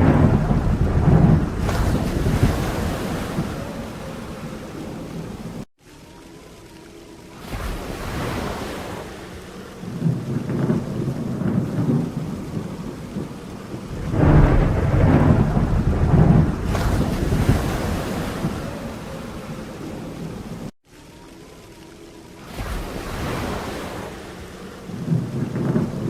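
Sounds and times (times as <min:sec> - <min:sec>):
rolling thunder: 0:00.0 - 0:05.6, 0:09.8 - 0:20.7, 0:24.9 - 0:26.0
steady rain: 0:00.0 - 0:26.0.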